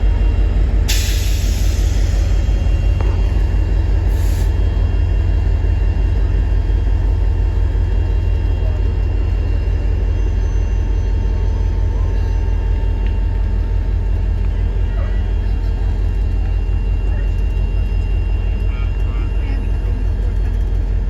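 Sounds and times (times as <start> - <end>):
steam train rumbling past: 0.0 - 10.1.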